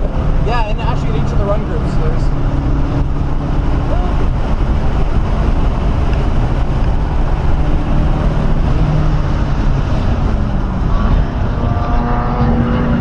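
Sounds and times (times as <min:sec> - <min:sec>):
car engine pulling hard: 0:00.0 - 0:13.0
wind and road noise: 0:00.0 - 0:13.0.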